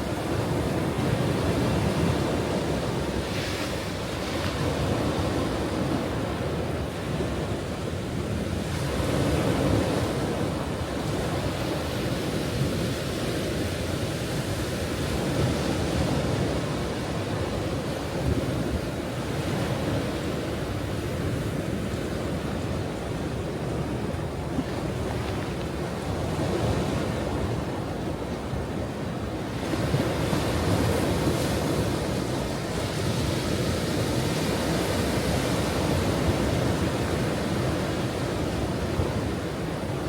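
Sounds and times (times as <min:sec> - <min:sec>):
ocean waves on shore: 0:00.0 - 0:40.0
wind on microphone: 0:00.0 - 0:40.0.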